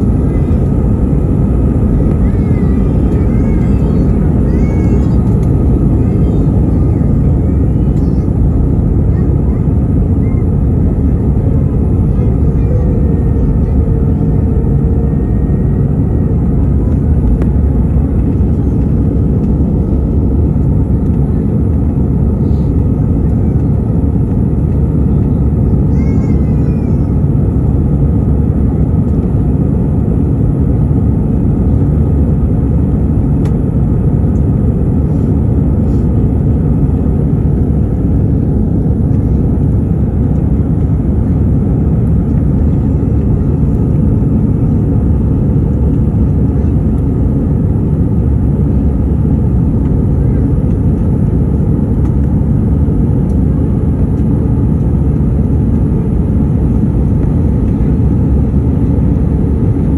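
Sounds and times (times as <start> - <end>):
jet cabin engine rumble: 0.0 - 59.9.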